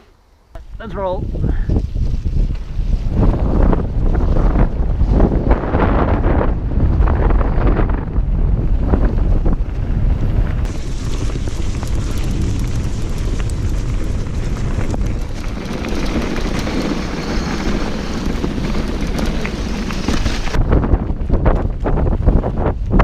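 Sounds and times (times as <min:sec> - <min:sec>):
bike tyre rumble: 0:00.5 - 0:23.0
wind buffeting microphone: 0:00.5 - 0:23.0
bike clicks and rattles: 0:10.3 - 0:23.0.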